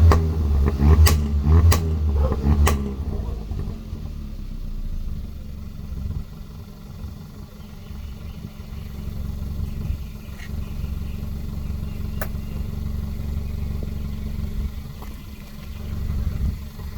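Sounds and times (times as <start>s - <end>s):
car engine low rumble: 0.0s - 16.9s
sharp tick: 12.2s - 12.4s.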